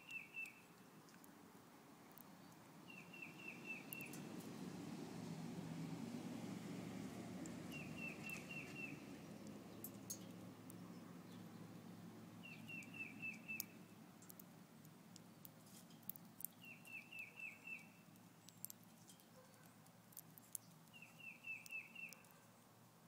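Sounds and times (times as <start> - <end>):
faint clicks: 0.0 - 1.4, 3.4 - 4.5, 7.4 - 11.4, 12.4 - 22.7
songbird whistling falling notes: 7.7 - 9.0, 12.4 - 13.8.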